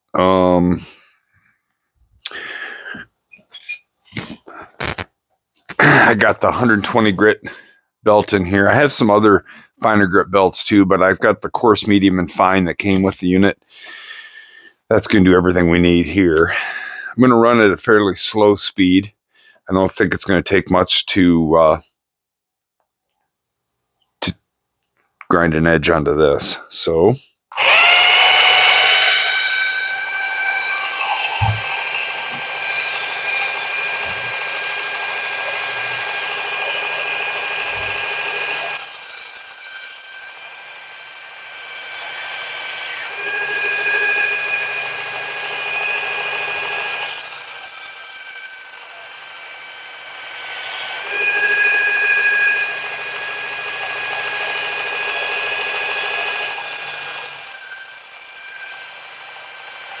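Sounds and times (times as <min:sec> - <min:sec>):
belt sharpener motor whining: 0:27.6 - 1:00.0.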